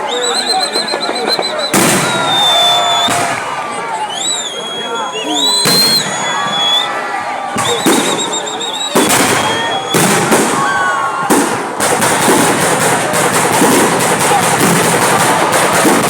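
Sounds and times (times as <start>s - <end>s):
crowd voices: 0.0s - 16.0s
fireworks crackling: 0.3s - 3.6s, 7.6s - 16.0s
fireworks bangs: 0.3s - 3.7s, 5.5s - 6.8s, 7.5s - 16.0s.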